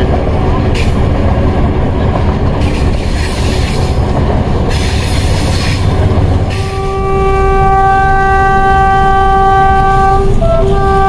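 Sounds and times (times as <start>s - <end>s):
diesel locomotive rumbling: 0.0s - 11.0s
wheels hissing and squealing: 2.6s - 4.0s, 4.7s - 5.9s.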